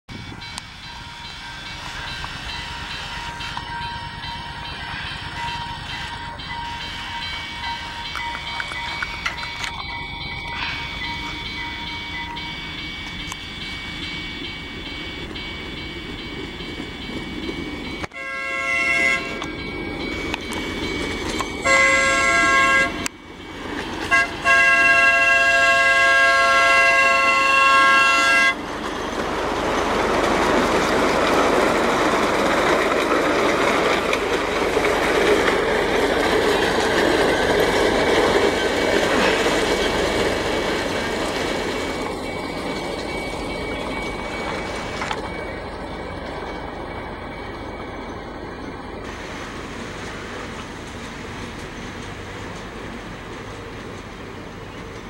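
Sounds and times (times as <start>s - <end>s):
train rumble and wheel noise: 0.1s - 55.0s
train horn chord: 18.1s - 19.5s, 21.6s - 23.1s, 24.1s - 28.6s.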